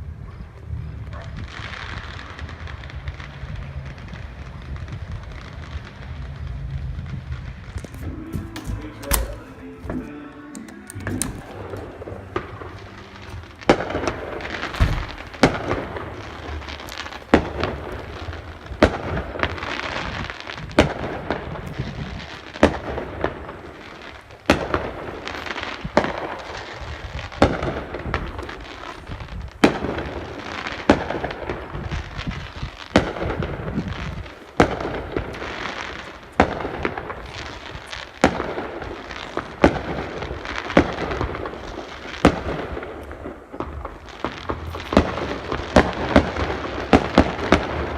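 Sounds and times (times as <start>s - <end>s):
steady rush of noise: 0.0s - 29.6s
fireworks bangs: 0.0s - 47.9s.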